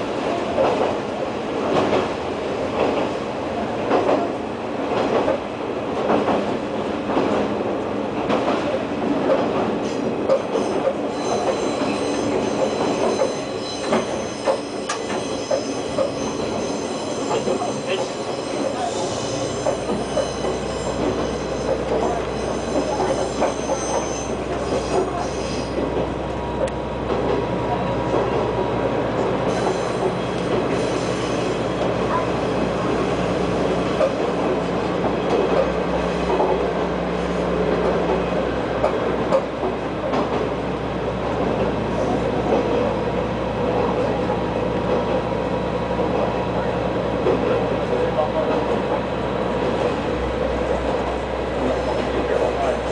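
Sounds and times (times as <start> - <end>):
train wheels on rails: 0.0 - 52.9
faint high wheel squeal: 10.6 - 25.8.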